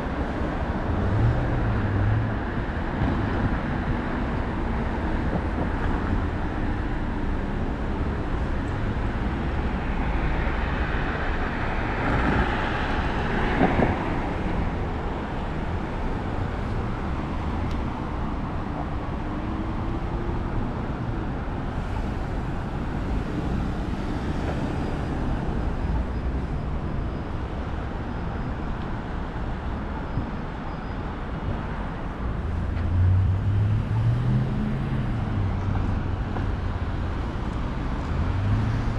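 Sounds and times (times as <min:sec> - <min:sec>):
rumble of passing cars: 0:00.0 - 0:38.9.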